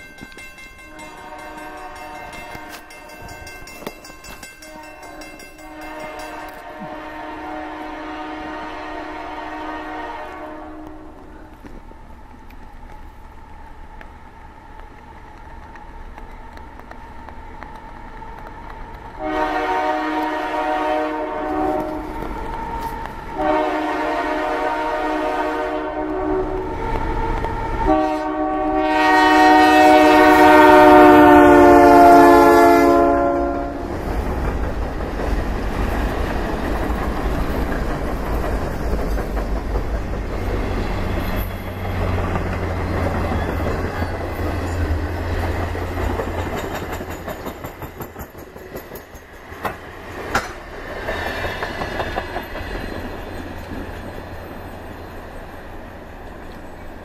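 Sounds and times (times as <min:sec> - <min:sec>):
locomotive horn blasts: 0:00.9 - 0:03.5, 0:04.6 - 0:11.3, 0:19.2 - 0:22.2, 0:23.4 - 0:33.9
freight cars clattering over rails: 0:34.0 - 0:54.2.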